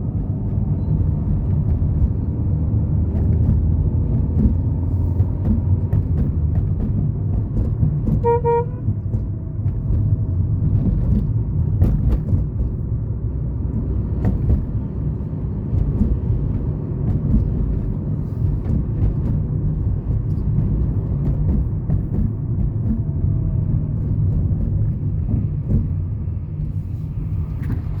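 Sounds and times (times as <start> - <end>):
street traffic rumble: 0.0 - 28.0
car horn toot: 8.2 - 8.9.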